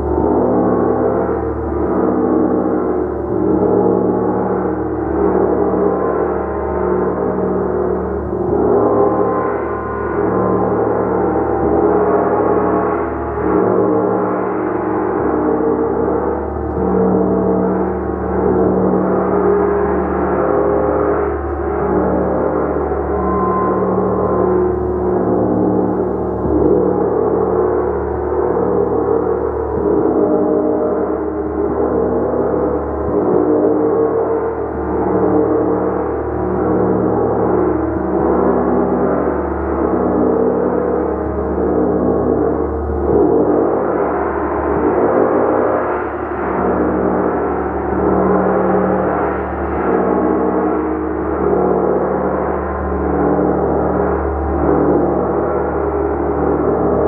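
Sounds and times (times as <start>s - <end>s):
gong ringing: 21.7s - 32.0s.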